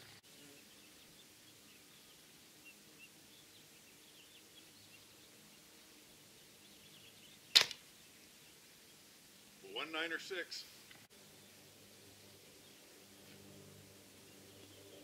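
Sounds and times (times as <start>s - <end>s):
distant bird chirps: 0.0s - 15.0s.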